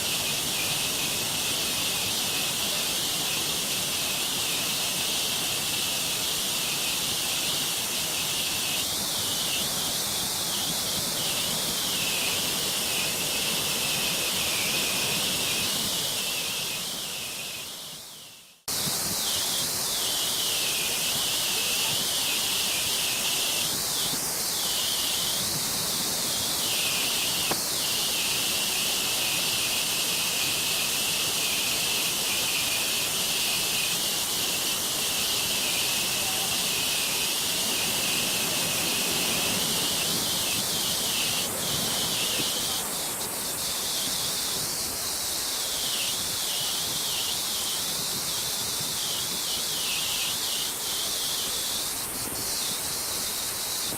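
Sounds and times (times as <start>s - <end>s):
waterfall roaring: 19.0s - 52.2s.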